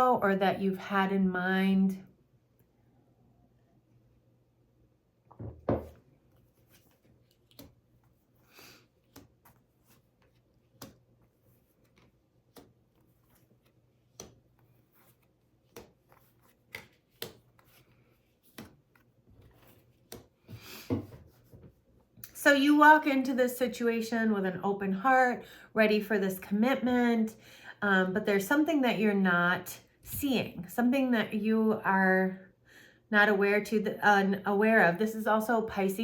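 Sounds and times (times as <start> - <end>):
knock on table: 5.3 - 6.0
cards clicking and tapping on table: 7.3 - 7.8, 9.0 - 9.6, 10.2 - 11.2, 11.8 - 13.4, 14.0 - 14.7, 15.6 - 17.8, 18.4 - 19.0, 19.9 - 20.4.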